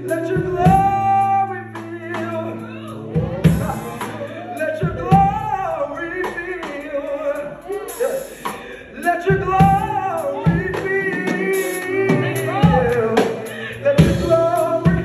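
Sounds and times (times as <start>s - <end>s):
man singing gospel melody: 0.0s - 15.0s
drum hits: 3.1s - 5.6s, 9.3s - 15.0s.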